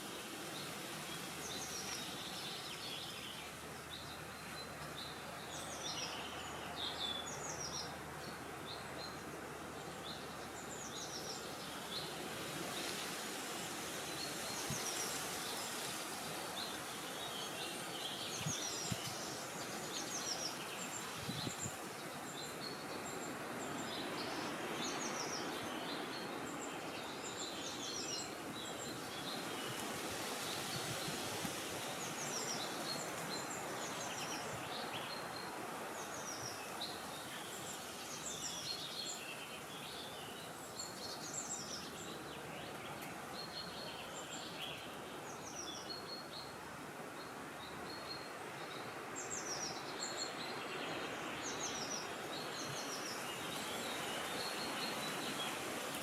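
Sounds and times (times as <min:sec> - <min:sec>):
wind blowing: 0:00.0 - 0:39.0
small birds chirping: 0:00.0 - 0:56.0.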